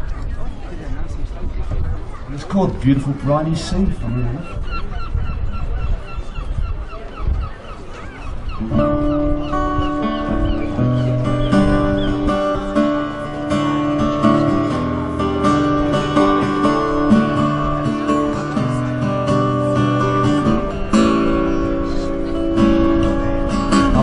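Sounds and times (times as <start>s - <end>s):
acoustic guitar strumming chords: 8.6s - 24.0s.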